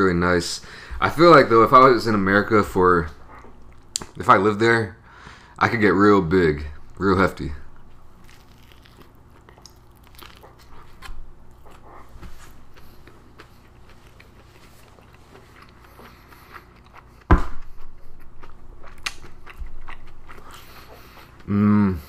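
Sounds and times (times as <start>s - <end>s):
close chewing with wet clicks: 7.8s - 11.8s, 18.1s - 21.3s.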